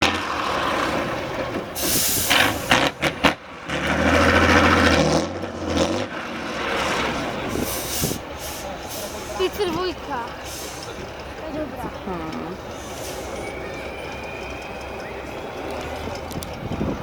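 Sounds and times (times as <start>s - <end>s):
truck engine running under load: 0.0s - 17.0s
sharp air hisses: 1.8s - 2.7s, 7.6s - 9.4s, 12.7s - 13.6s.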